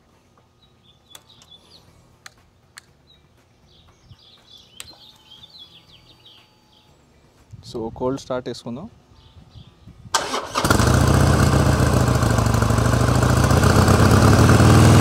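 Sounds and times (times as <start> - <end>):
faint birds chirping: 0.0 - 10.1.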